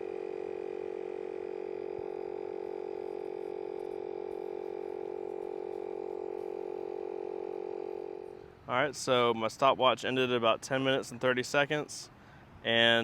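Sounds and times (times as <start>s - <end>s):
electric pump humming: 0.0s - 8.7s.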